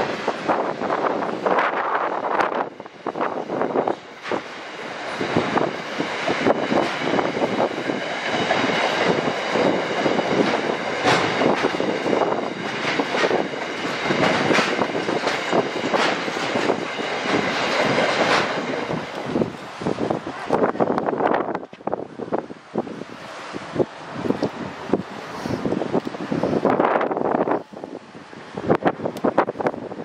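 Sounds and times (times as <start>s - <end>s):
train wheels clattering: 0.0s - 19.6s.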